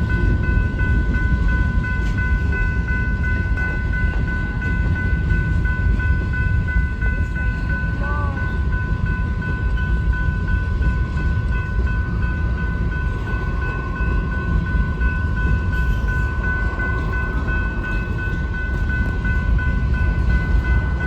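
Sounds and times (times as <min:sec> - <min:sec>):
freight train cars rumbling: 0:00.0 - 0:21.0.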